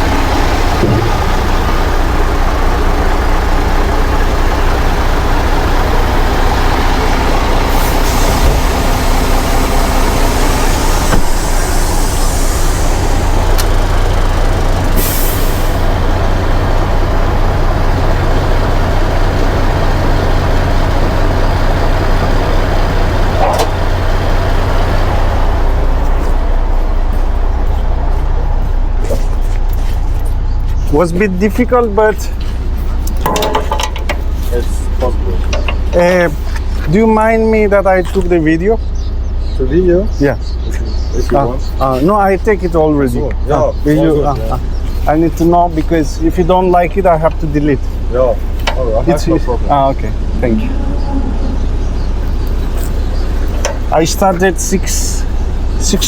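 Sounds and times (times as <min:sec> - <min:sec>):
truck diesel engine running: 0:00.0 - 0:56.0
air brake hisses: 0:09.6 - 0:13.8, 0:15.0 - 0:15.8.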